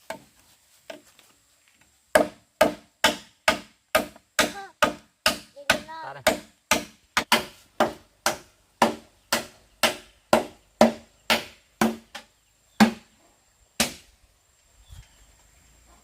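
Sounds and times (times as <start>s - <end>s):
axe chopping wood: 2.1s - 13.1s, 13.8s - 14.1s.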